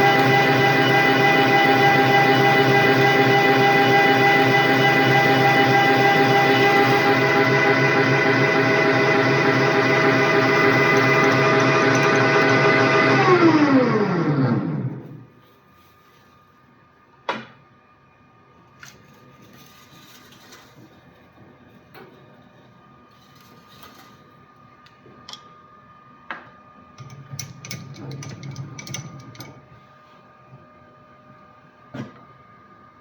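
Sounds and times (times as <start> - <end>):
machine tool whining: 0.0 - 15.2.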